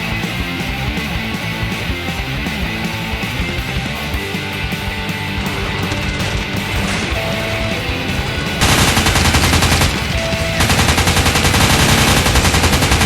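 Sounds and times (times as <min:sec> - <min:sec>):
rock music: 0:00.0 - 0:13.0
machine-gun bursts: 0:05.4 - 0:13.0.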